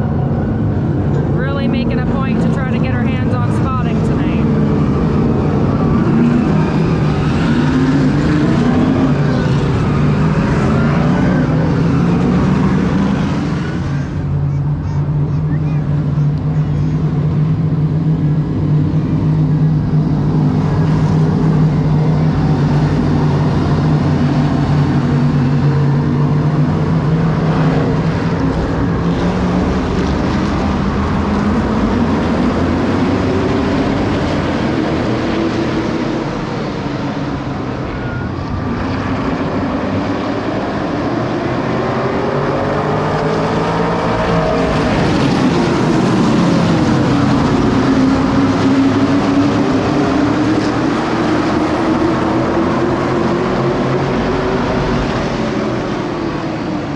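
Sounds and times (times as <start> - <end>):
race car engines droning: 0.0 - 56.9.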